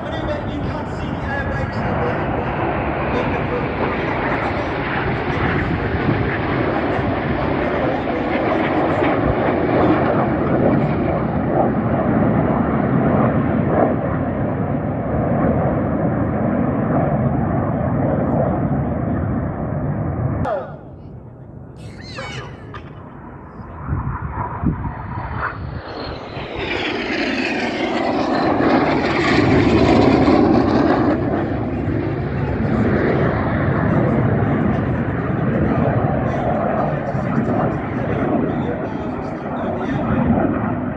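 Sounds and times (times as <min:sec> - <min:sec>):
jets flying past: 0:20.7 - 0:38.5.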